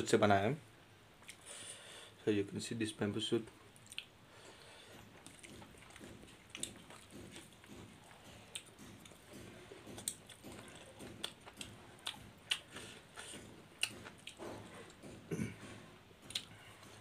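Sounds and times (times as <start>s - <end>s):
chewing and mouth smacks: 1.2s - 1.4s, 3.7s - 4.1s, 4.9s - 15.2s, 16.2s - 16.9s.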